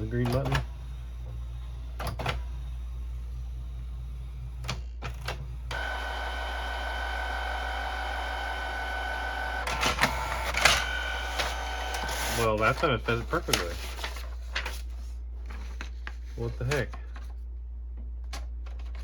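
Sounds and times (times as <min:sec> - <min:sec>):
printer clicks: 0:05.2 - 0:12.5
printer feed motor whine: 0:05.4 - 0:13.6.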